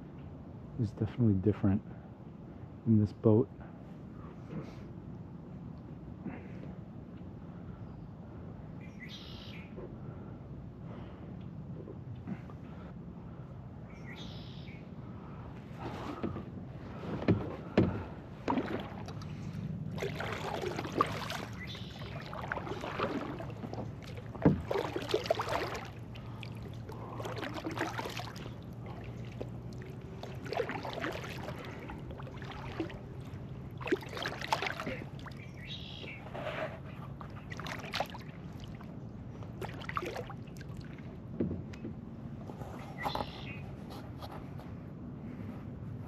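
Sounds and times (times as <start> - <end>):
kayak paddle strokes in water: 15.6 - 41.7.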